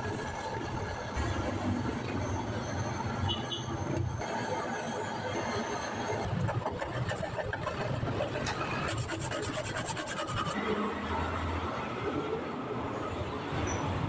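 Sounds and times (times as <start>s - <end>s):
hand tool scraping metal: 8.3s - 10.6s.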